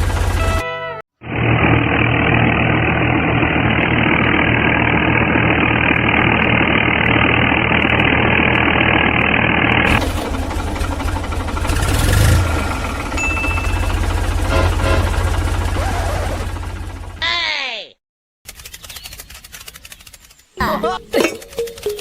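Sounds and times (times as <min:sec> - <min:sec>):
small diesel engine chugging: 0:00.0 - 0:17.2.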